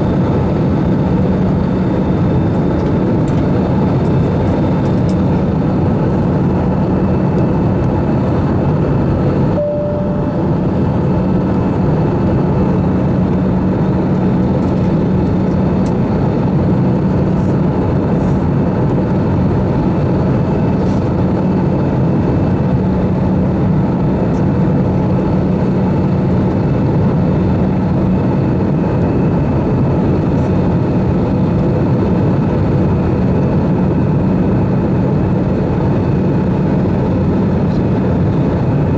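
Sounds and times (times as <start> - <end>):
jet engines humming: 0.0 - 38.9
short single tone: 9.6 - 11.1.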